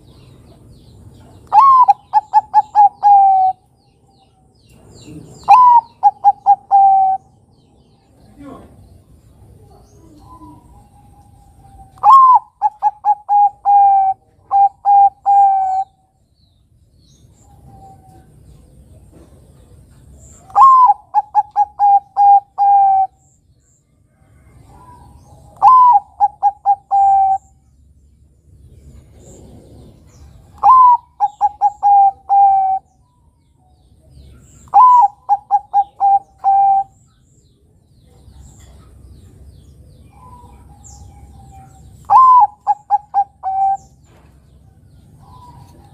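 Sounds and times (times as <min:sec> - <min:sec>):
dove cooing: 0:01.2 - 0:03.7, 0:04.9 - 0:07.4, 0:09.5 - 0:16.0, 0:20.4 - 0:23.3, 0:24.5 - 0:27.6, 0:29.0 - 0:33.0, 0:34.3 - 0:37.0, 0:40.1 - 0:45.9.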